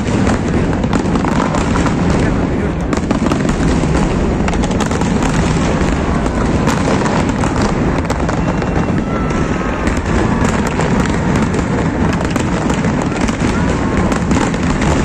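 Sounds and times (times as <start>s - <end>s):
fireworks rumbling and crackling: 0.0s - 15.0s.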